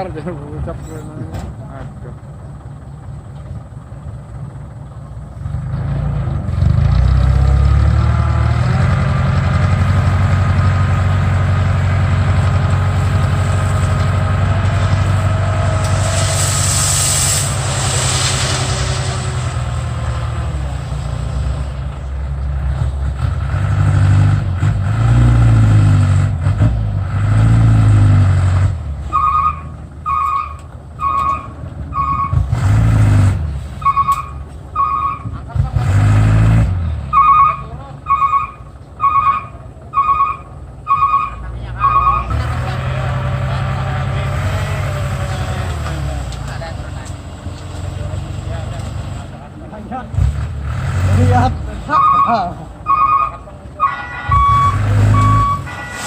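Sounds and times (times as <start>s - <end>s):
truck diesel engine revving: 0.0s - 56.0s
air hiss: 15.9s - 19.3s
warning beeper: 37.1s - 42.3s, 51.9s - 56.0s.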